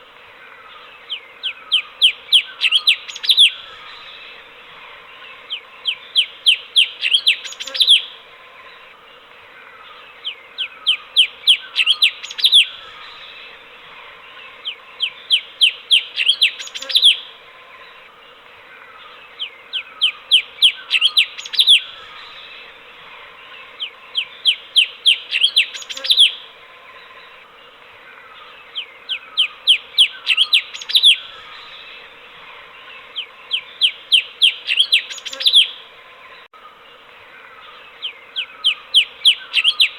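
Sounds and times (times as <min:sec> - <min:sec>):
background hiss: 0:00.0 - 0:39.9
bird singing whistled notes: 0:01.0 - 0:04.4, 0:05.5 - 0:08.2, 0:10.2 - 0:13.6, 0:14.4 - 0:17.4, 0:19.0 - 0:22.8, 0:23.8 - 0:27.4, 0:28.6 - 0:32.2, 0:32.9 - 0:35.8, 0:37.9 - 0:39.9.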